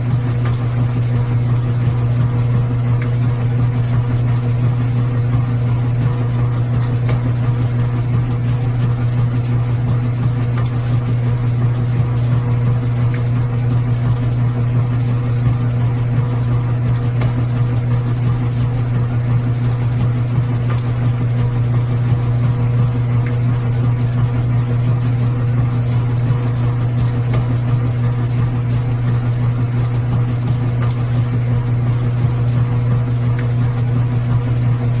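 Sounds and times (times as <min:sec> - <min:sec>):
washing machine hum: 0:00.0 - 0:35.0.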